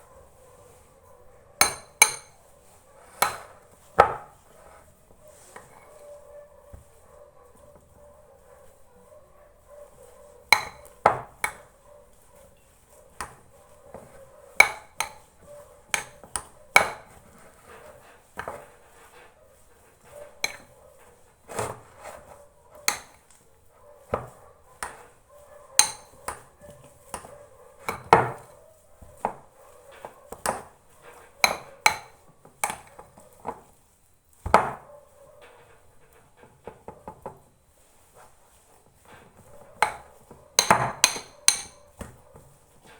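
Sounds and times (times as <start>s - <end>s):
utensil knocking against a pot: 1.6s - 2.4s, 10.5s - 11.6s, 14.6s - 15.2s, 25.8s - 26.1s, 40.6s - 41.8s.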